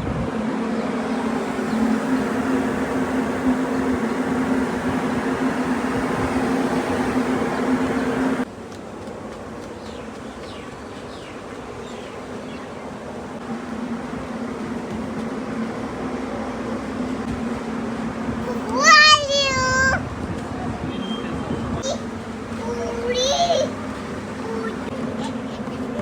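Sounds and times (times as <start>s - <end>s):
buzzing hum: 0.0s - 8.4s.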